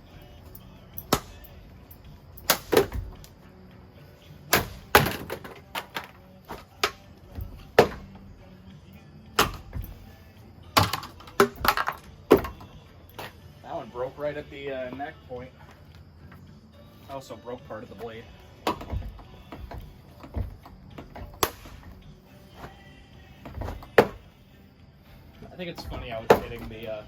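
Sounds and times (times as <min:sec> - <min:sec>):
fan blade snapping: 0:01.0 - 0:01.5, 0:02.4 - 0:03.4, 0:18.7 - 0:22.0
fan blades knocking and cracking: 0:02.4 - 0:03.3, 0:04.5 - 0:08.2, 0:10.8 - 0:13.3, 0:18.7 - 0:22.0, 0:23.5 - 0:24.3, 0:25.7 - 0:27.0.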